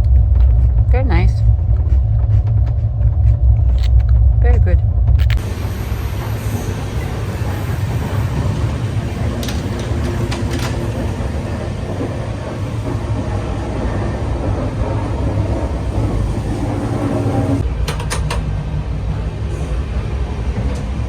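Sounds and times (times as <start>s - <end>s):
train rumbling inside coach: 0.0s - 21.0s.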